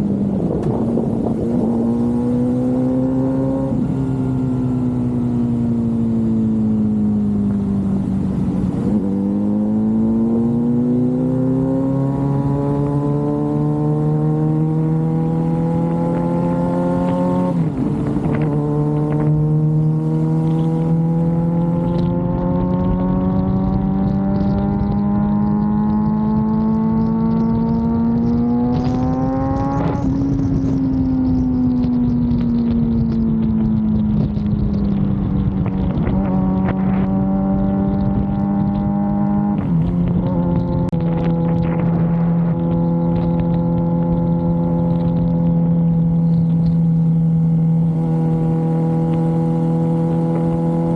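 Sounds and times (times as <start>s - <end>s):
motorcycle engine cruising: 0.0s - 50.9s.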